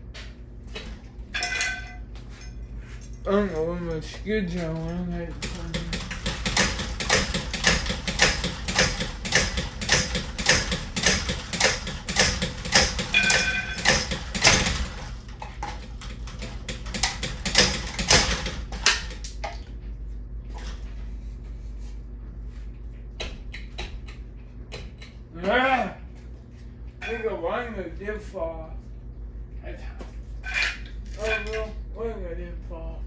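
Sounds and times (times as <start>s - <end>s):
knocks and clatter of fan parts: 0.0s - 21.4s
high squeak: 27.0s - 27.4s.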